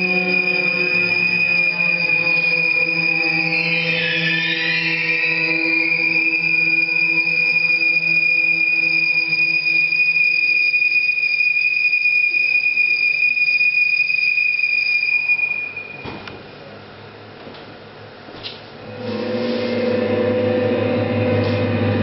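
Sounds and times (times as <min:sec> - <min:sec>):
low drone: 0:00.0 - 0:13.6, 0:18.8 - 0:22.0
high whistle-like tone: 0:00.0 - 0:16.3.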